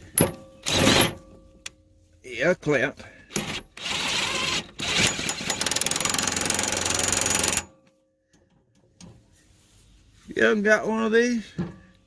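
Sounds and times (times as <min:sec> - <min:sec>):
impact wrench hammering on a bolt: 0:04.8 - 0:07.7.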